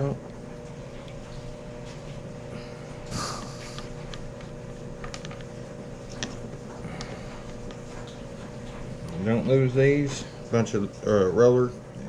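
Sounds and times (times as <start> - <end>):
steady low hum: 0.0 - 12.0
person sniffing: 3.0 - 4.0.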